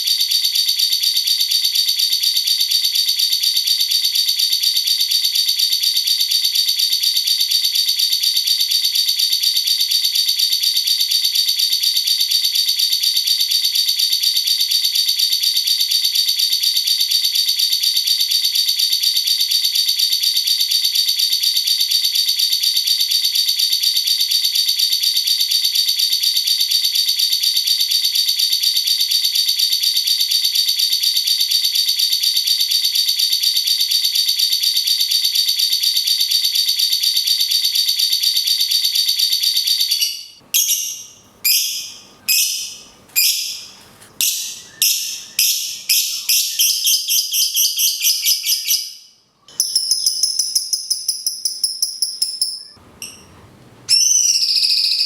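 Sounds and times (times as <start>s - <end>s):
lovebird buzzing trilled chatter: 40.0s - 49.0s.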